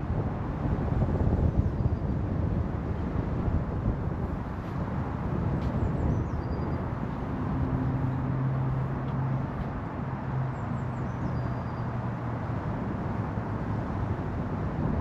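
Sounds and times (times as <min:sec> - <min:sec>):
distant traffic hum: 0:00.0 - 0:15.0
faint high bird chirp: 0:10.9 - 0:11.9.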